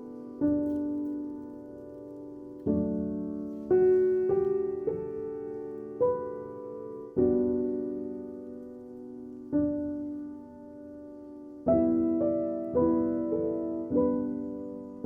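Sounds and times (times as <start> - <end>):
soft slow piano music: 0.0 - 15.0.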